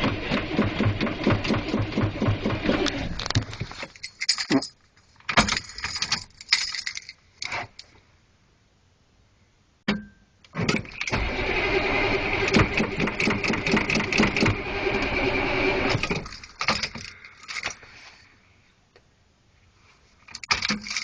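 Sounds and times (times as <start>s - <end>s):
diesel engine cranking and firing: 0.0s - 3.4s, 10.5s - 17.8s.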